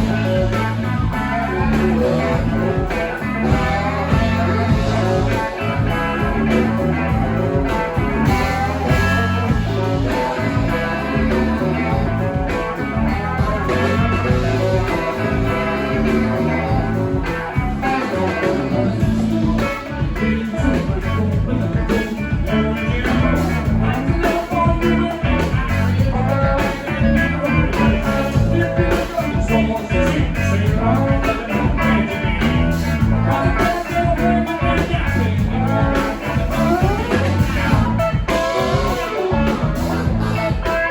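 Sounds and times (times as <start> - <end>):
bass: 0.0 - 40.9
drums: 0.0 - 40.9
electric guitar: 0.0 - 40.9.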